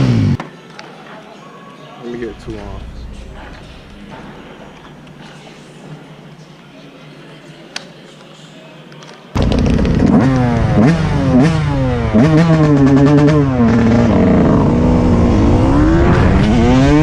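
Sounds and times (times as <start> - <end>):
dirt bike engine revving: 0.0 - 0.4, 9.4 - 17.0.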